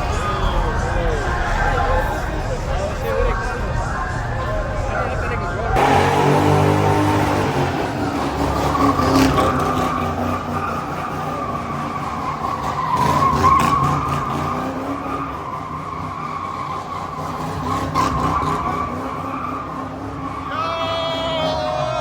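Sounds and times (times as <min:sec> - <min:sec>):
car engine running hard: 0:00.0 - 0:22.0
tyres squealing: 0:00.0 - 0:22.0.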